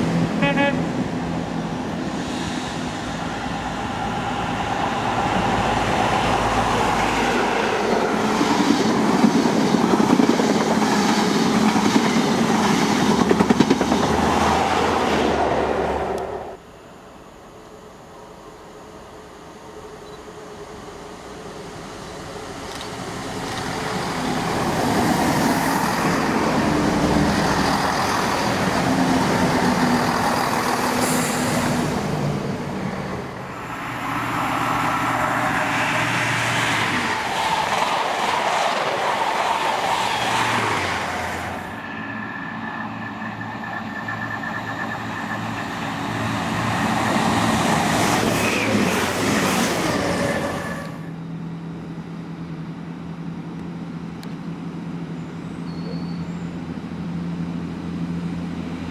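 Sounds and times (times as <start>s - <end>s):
train engine hum: 0.0s - 58.9s
train wheel noise: 1.0s - 16.6s, 21.2s - 51.2s.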